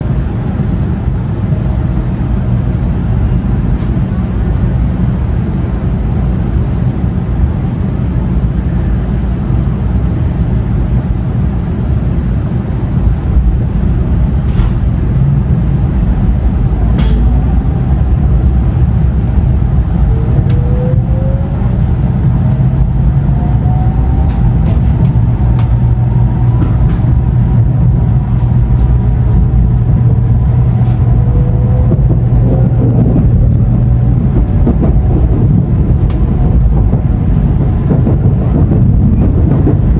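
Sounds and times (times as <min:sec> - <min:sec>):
train low rumble: 0:00.0 - 0:39.9
train whine rising in pitch: 0:13.6 - 0:39.3.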